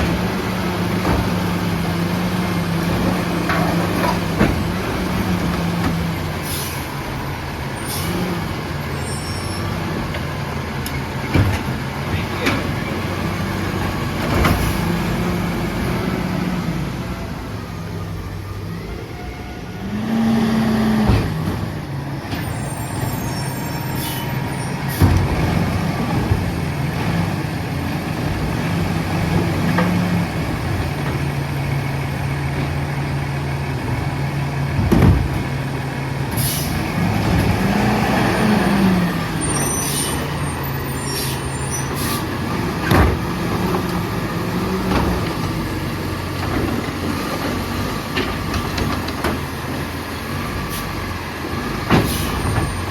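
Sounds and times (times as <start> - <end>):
high squeals: 8.9 - 9.7, 22.4 - 24.9, 39.4 - 42.2.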